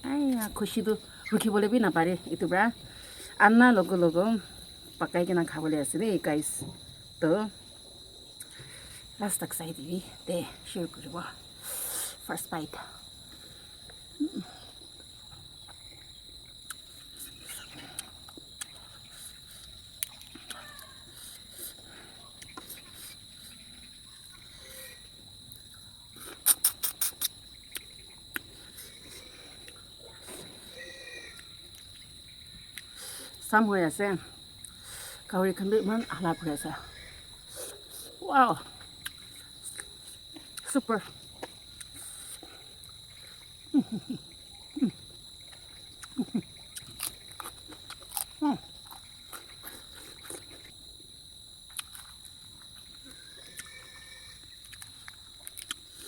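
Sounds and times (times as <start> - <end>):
insect chirring: 0.0 - 56.0
soft eating noises: 8.2 - 33.4, 36.9 - 56.0.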